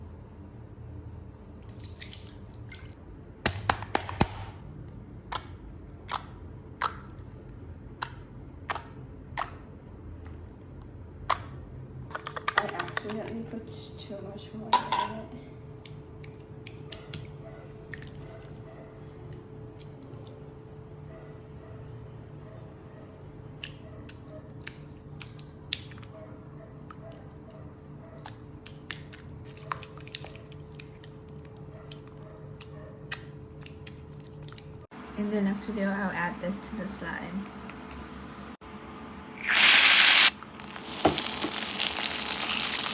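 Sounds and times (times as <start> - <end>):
wet mixture clicks and squishes: 1.6 - 13.4, 15.8 - 18.6, 19.3 - 20.5, 23.5 - 27.6, 28.2 - 34.8, 39.4 - 42.9.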